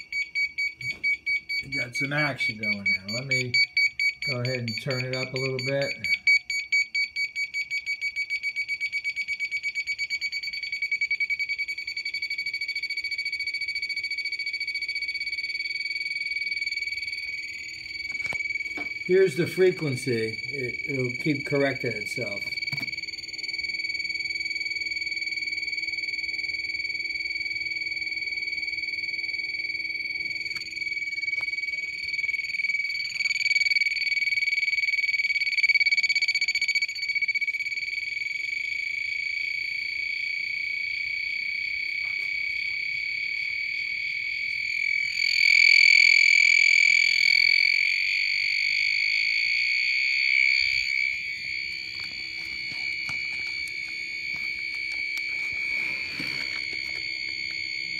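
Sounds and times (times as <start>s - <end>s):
high-pitched beeper tone: 18.1s - 23.0s, 50.4s - 57.9s.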